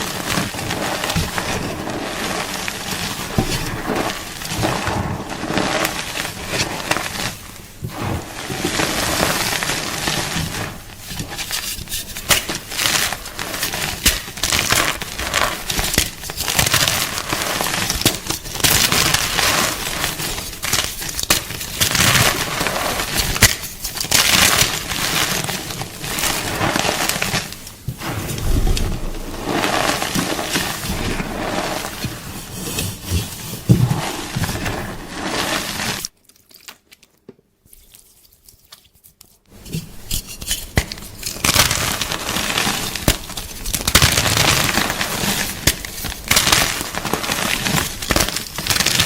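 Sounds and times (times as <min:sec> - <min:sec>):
chalk being crunched: 0:00.0 - 0:36.1.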